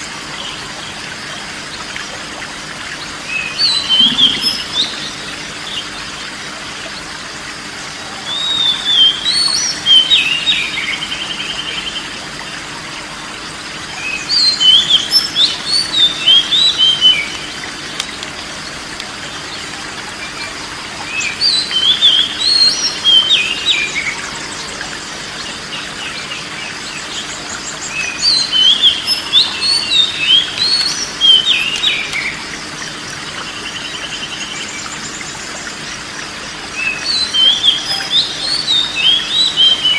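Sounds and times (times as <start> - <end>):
bird singing whistled phrases: 3.3 - 5.3, 8.0 - 11.9, 27.9 - 32.4, 36.8 - 39.9.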